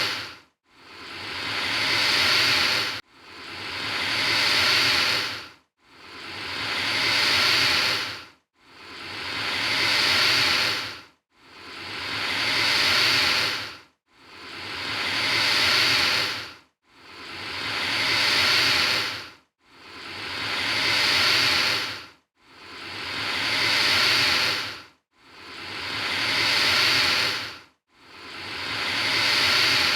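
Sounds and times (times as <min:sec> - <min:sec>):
alligator hissing: 0:00.0 - 0:00.3, 0:00.9 - 0:03.0, 0:03.6 - 0:05.4, 0:06.8 - 0:08.2, 0:08.9 - 0:10.9, 0:11.7 - 0:13.7, 0:14.4 - 0:16.4, 0:17.2 - 0:19.2, 0:19.9 - 0:22.0, 0:22.7 - 0:24.8, 0:25.4 - 0:27.5, 0:28.3 - 0:29.9.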